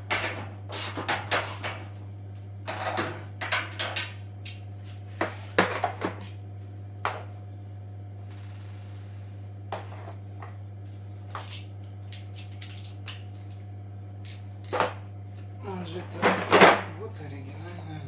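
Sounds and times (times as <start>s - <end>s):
steady low hum: 0.0s - 18.0s
tools and parts clicking and knocking: 11.3s - 13.3s, 14.2s - 15.0s.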